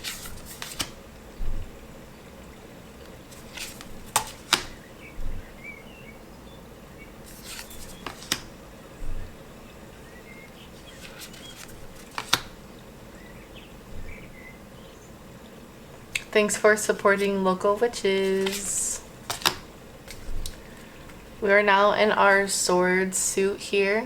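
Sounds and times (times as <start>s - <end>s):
cards snapping and sliding: 0.0s - 1.0s, 3.3s - 4.8s, 7.3s - 8.5s, 10.9s - 12.6s, 18.2s - 20.6s
cards thumping down: 0.0s - 1.0s, 3.3s - 4.8s, 7.3s - 9.3s, 10.8s - 12.6s, 18.2s - 21.2s.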